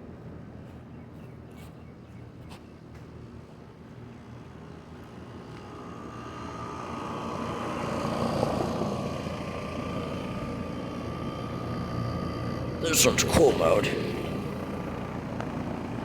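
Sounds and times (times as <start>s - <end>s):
hvac unit humming: 3.2s - 16.0s.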